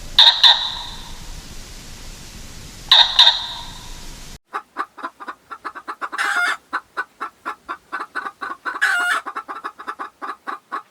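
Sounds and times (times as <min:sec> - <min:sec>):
chickens clucking: 0:00.2 - 0:01.1, 0:02.9 - 0:03.8, 0:04.5 - 0:10.9
chicken squawks: 0:00.2 - 0:01.2, 0:02.9 - 0:03.9, 0:04.5 - 0:10.9.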